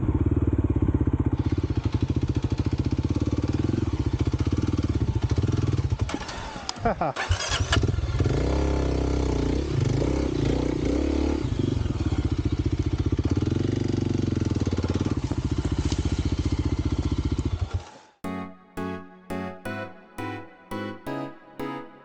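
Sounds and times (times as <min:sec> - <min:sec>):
music: 0:18.2 - 0:22.0.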